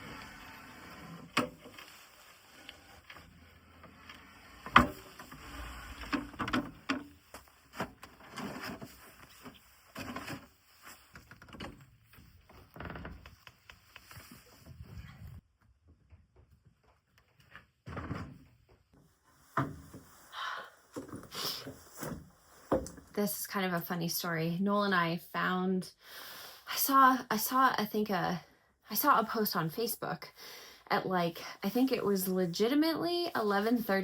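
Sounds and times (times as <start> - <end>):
wooden furniture knocks and scrapes: 19.6 - 20.0.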